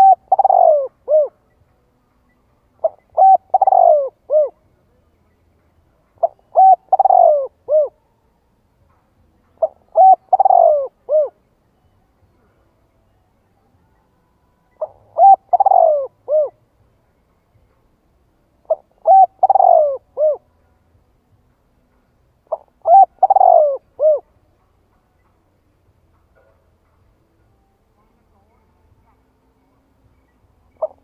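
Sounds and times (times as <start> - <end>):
dove cooing: 0.0 - 1.5, 2.8 - 4.7, 6.2 - 8.0, 9.6 - 11.4, 14.8 - 16.6, 18.6 - 20.5, 22.5 - 24.4, 30.7 - 31.0.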